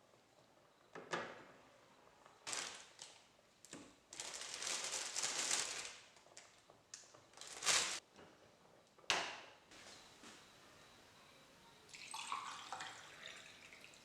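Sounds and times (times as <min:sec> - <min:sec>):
rustling: 0:04.1 - 0:06.5, 0:07.3 - 0:08.0.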